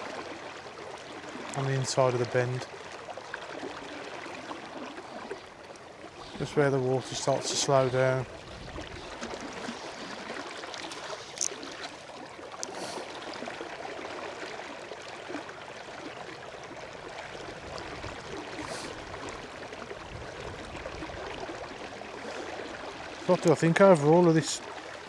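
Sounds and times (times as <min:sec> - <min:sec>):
river water running over riffle: 0:00.0 - 0:25.0.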